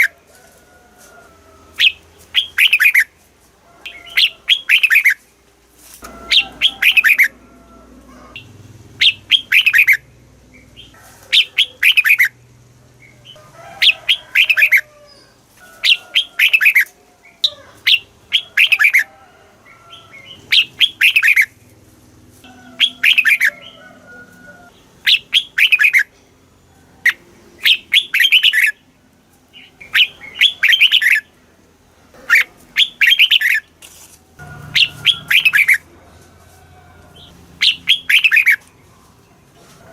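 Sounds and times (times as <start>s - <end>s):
bulbul whistled song: 1.8s - 3.1s, 3.9s - 5.2s, 8.4s - 10.1s, 20.5s - 21.6s, 22.8s - 23.6s, 25.0s - 26.1s, 27.1s - 28.8s, 29.8s - 31.2s, 32.3s - 33.6s, 34.7s - 35.8s, 37.2s - 38.7s.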